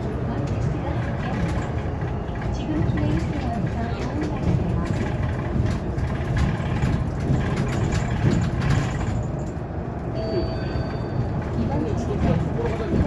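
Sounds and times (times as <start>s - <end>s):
bus road and tyre rumble: 0.0s - 13.0s
light rattles: 0.3s - 9.8s
faint tone: 10.2s - 11.2s.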